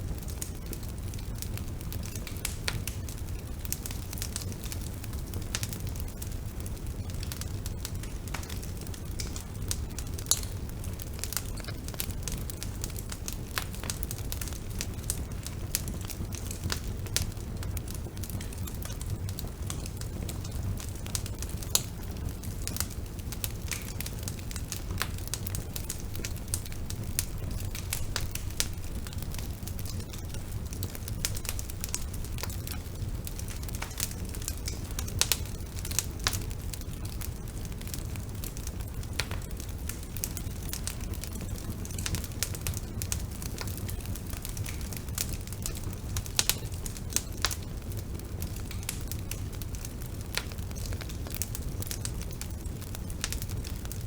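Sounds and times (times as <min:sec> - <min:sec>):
low rumble of flames: 0:00.0 - 0:54.0
wood crackling and popping: 0:00.0 - 0:54.0.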